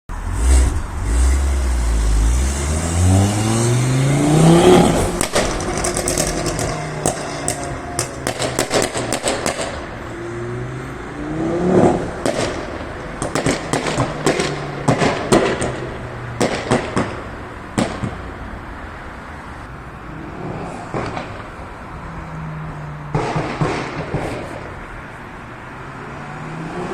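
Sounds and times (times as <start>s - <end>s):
car engine revving: 0.1s - 17.2s
exhaust pops and bangs: 4.5s - 9.9s, 11.8s - 18.2s, 20.9s - 21.6s, 23.1s - 24.8s.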